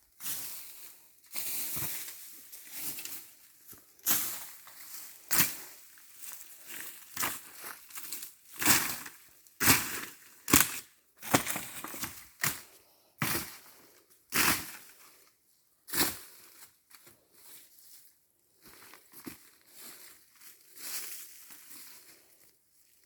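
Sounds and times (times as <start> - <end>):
crunching of dry leaves: 18.6 - 22.4.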